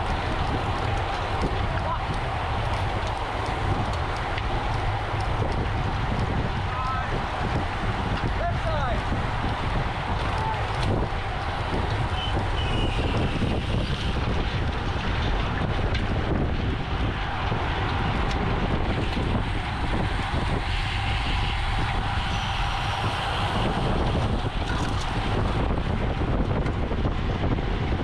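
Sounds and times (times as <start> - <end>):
tyre and road rumble: 0.0 - 28.0
wind rushing over microphone: 0.0 - 28.0.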